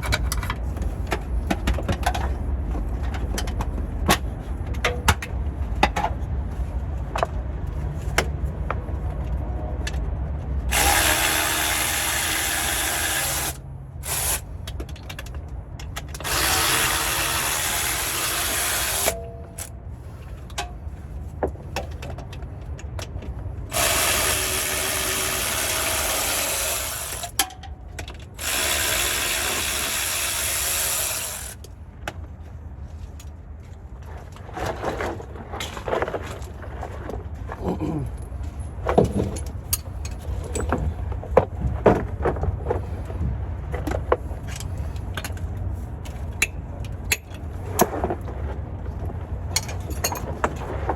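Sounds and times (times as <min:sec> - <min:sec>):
cordless power tool running: 0:10.7 - 0:14.4, 0:16.2 - 0:19.7, 0:23.7 - 0:27.4, 0:28.4 - 0:31.6.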